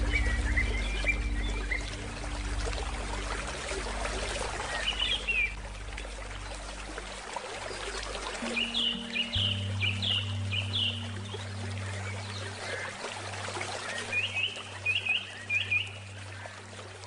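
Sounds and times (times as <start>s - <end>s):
bird chirping: 0.0s - 2.2s
low held music tones: 0.0s - 17.0s
river flowing: 0.0s - 17.0s.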